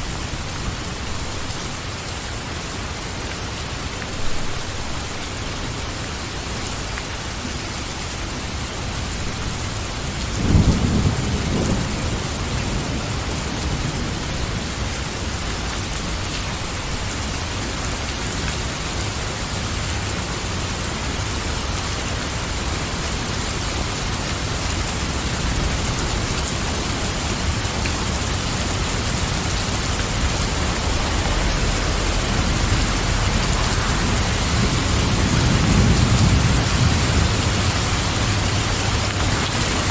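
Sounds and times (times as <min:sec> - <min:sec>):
steady rain falling: 0:00.0 - 0:39.9
low rumble of thunder: 0:09.9 - 0:17.2, 0:22.5 - 0:39.9
thunder clap: 0:10.4 - 0:14.8, 0:25.1 - 0:39.9.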